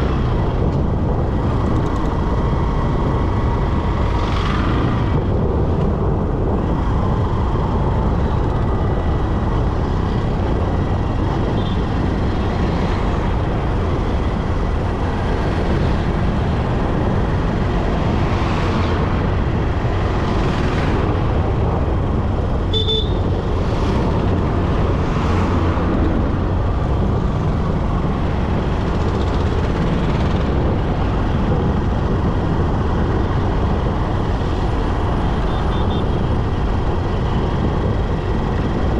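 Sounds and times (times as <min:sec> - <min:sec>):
motorcycle road and wind noise: 0:00.0 - 0:38.9
vehicles whooshing past: 0:00.0 - 0:38.9
horn toot: 0:22.7 - 0:23.2.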